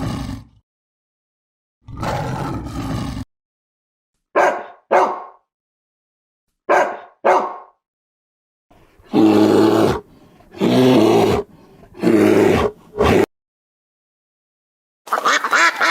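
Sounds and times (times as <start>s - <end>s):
animal sharp barks: 4.4s - 5.4s, 6.7s - 7.8s.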